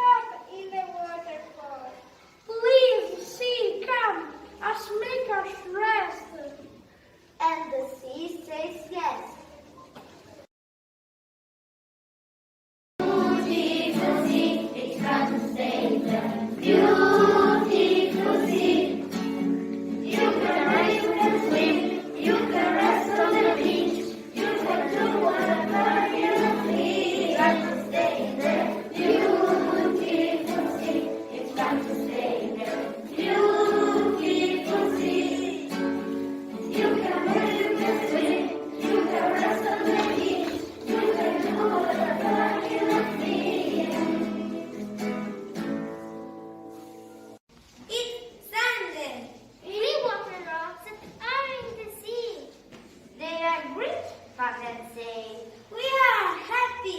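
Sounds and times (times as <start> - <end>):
children singing in chorus: 13.0 - 45.3.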